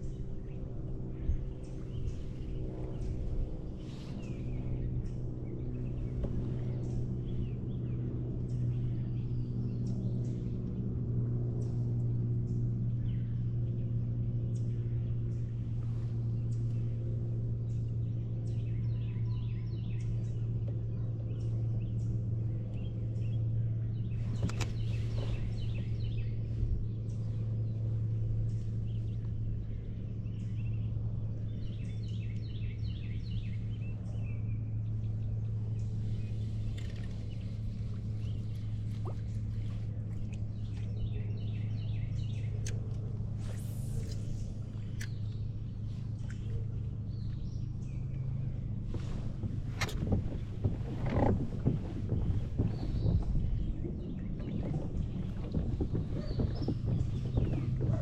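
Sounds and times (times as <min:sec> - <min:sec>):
steady low hum: 0:00.0 - 0:58.0
birds chirping in trills: 0:22.8 - 0:58.0.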